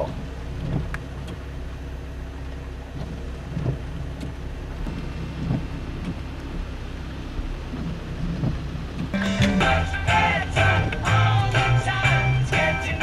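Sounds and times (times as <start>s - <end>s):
dull low thumps: 2.9s - 11.8s
low rumble: 3.7s - 13.0s.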